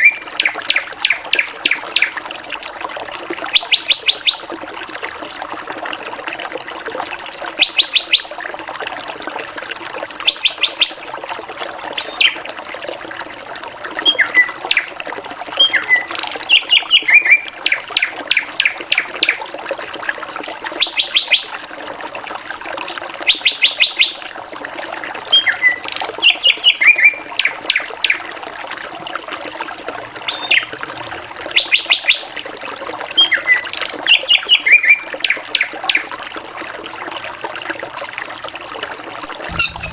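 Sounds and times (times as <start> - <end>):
bird singing: 12.0 - 12.4, 39.5 - 39.9.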